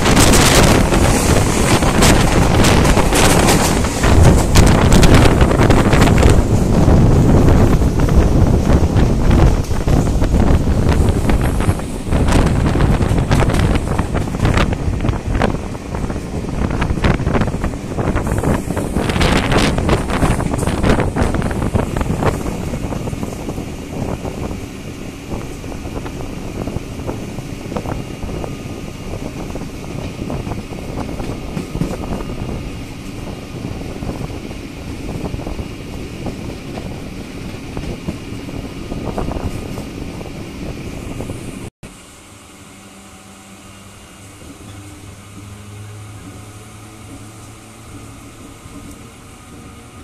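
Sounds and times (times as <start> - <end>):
train wheels clattering on rails: 0.0 - 41.3
wind buffeting microphone: 0.0 - 41.7.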